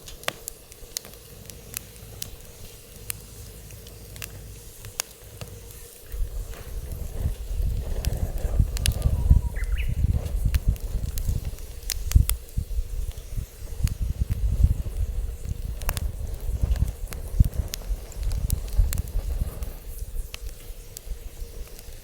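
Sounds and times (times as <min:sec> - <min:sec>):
wood fire crackling and popping: 0:00.0 - 0:22.0
wind buffeting microphone: 0:05.6 - 0:22.0.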